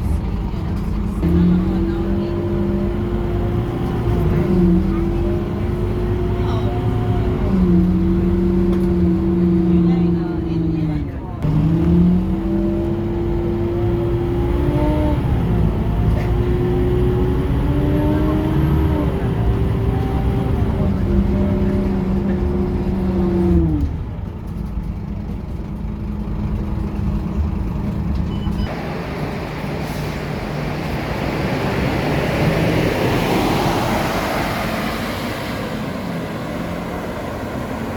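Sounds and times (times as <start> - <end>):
bus diesel engine: 0.0 - 37.9
broad rushing noise: 28.7 - 37.9.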